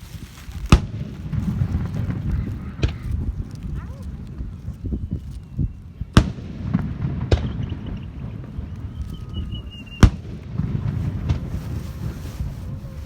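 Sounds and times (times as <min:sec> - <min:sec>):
fireworks bangs: 0:00.7 - 0:03.4, 0:06.1 - 0:13.0.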